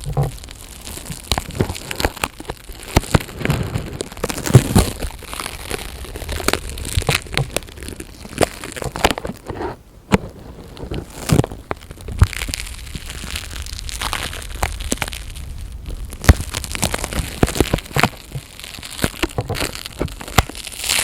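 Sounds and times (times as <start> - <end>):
crinkles and crackles: 0.0 - 21.0.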